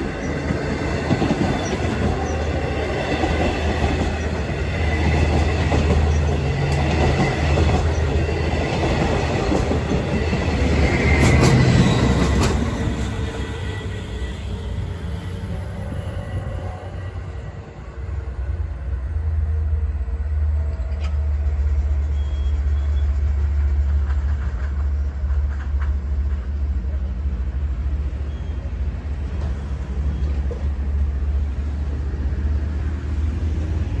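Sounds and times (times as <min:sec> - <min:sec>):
diesel passenger train passing: 0:00.0 - 0:34.0.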